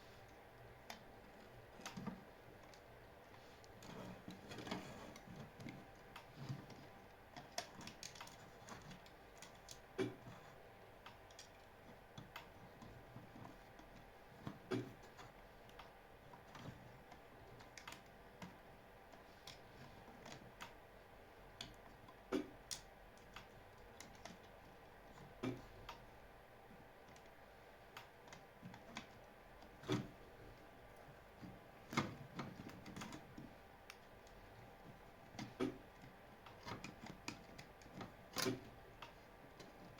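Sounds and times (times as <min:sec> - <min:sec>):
light clicks and taps: 0:00.3 - 0:20.8.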